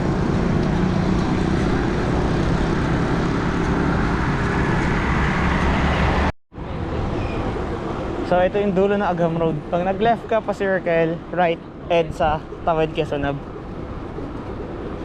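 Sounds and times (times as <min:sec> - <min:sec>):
city road traffic: 0:00.0 - 0:15.0.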